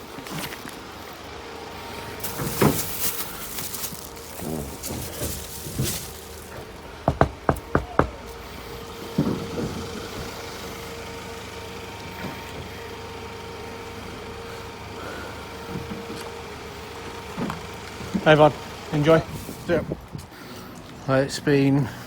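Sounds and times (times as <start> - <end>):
car hum: 0.0 - 22.0
dull thump: 4.4 - 8.3, 9.1 - 10.4.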